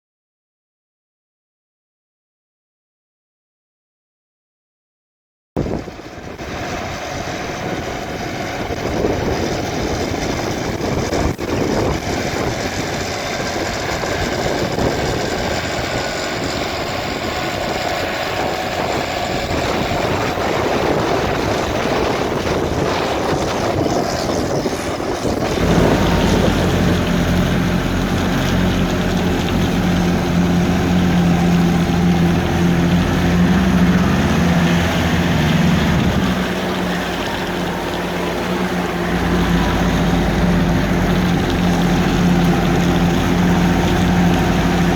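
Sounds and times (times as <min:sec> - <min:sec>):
steady rushing noise: 0:05.6 - 0:44.9
tractor diesel engine under load: 0:05.6 - 0:44.9.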